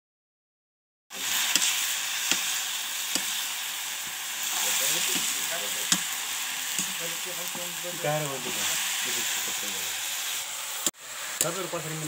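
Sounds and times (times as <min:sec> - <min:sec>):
mushrooms sizzling in hot oil: 0:01.1 - 0:12.0
ladle stirring and knocking on pan: 0:01.5 - 0:03.4, 0:04.0 - 0:07.8.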